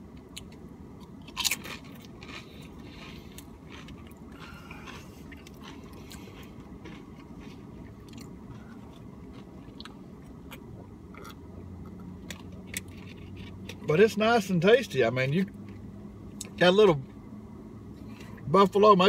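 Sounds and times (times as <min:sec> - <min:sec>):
low steady hum: 0:00.0 - 0:19.0
chips crunching while chewing: 0:00.3 - 0:11.4, 0:12.3 - 0:13.9.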